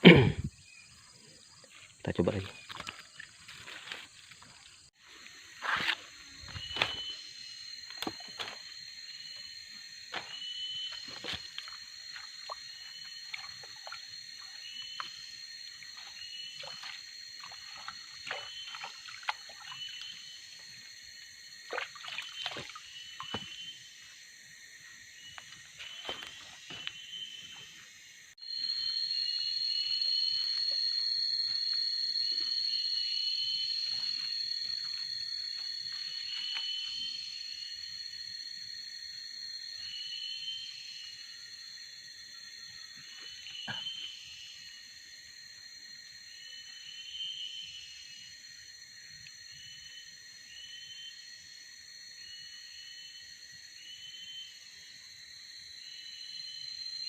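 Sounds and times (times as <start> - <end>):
high insect drone: 0.0 - 57.0
small water splashes: 11.0 - 20.2, 21.6 - 23.5.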